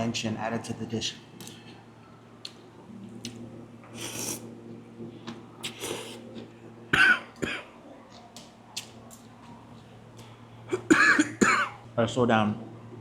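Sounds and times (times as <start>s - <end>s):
man coughing: 6.9s - 7.7s, 10.7s - 11.8s.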